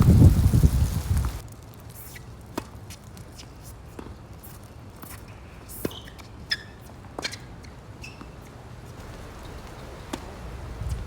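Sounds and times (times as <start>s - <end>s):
wind rumbling on microphone: 0.0s - 1.4s, 9.0s - 11.0s
shoe squeaks on court: 2.0s - 9.0s.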